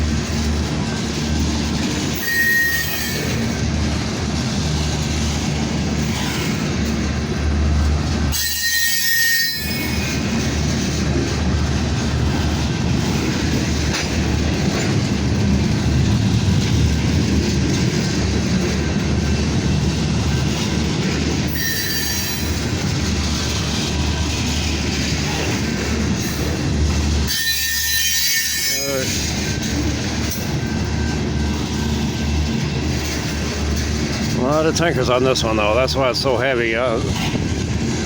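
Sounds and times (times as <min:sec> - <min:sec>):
train wheels rumbling on rail: 0:00.0 - 0:38.0
high-pitched wheel squeals: 0:02.2 - 0:03.3, 0:08.3 - 0:10.2, 0:21.5 - 0:22.6, 0:27.3 - 0:29.2.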